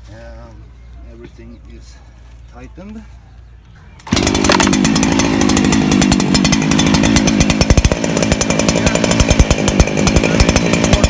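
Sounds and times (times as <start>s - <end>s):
chainsaw running loudly: 4.0s - 11.0s.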